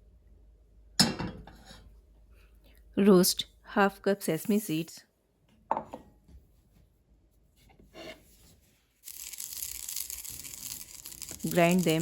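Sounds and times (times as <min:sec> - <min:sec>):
seeds roasting in a pan: 0:09.0 - 0:12.0.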